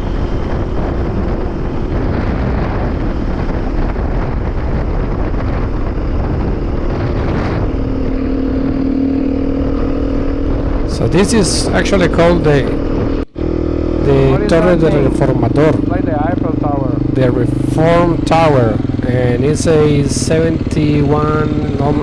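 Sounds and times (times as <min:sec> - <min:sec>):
dirt bike engine: 0:00.0 - 0:22.0
wind and road noise: 0:00.0 - 0:22.0.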